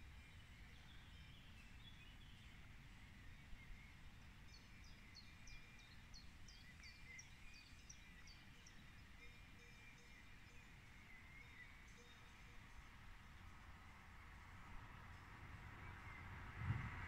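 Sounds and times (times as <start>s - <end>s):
low outdoor rumble: 12.7s - 17.0s.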